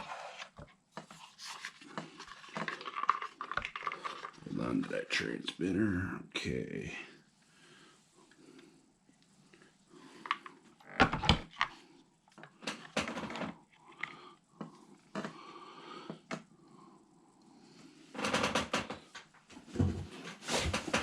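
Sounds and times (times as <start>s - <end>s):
plastic parts clicking and knocking: 0.4s - 4.5s, 10.2s - 15.4s.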